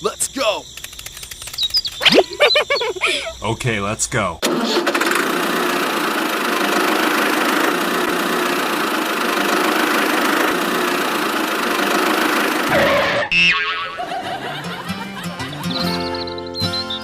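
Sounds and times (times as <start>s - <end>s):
small tractor motor running: 4.4s - 13.0s.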